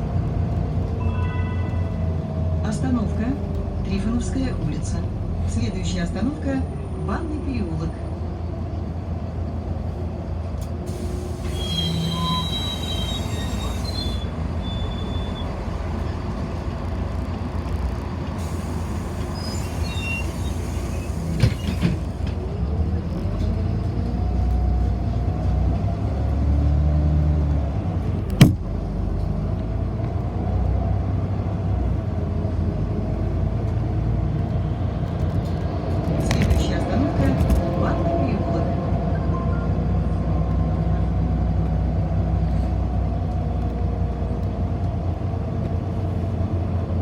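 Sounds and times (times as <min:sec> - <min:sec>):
bus engine and road rumble: 0:00.0 - 0:47.0
sharp knock: 0:28.3 - 0:28.7.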